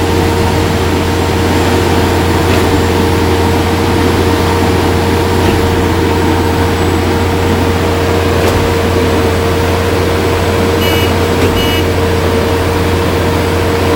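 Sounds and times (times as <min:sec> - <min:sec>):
heavy diesel engines droning: 0:00.0 - 0:13.9
short high beeps: 0:10.8 - 0:12.0.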